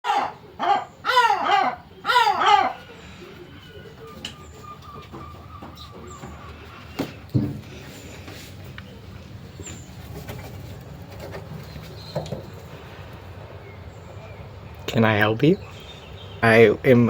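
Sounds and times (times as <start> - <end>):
birds calling sharply: 0.0 - 17.0
knocks: 7.0 - 7.7.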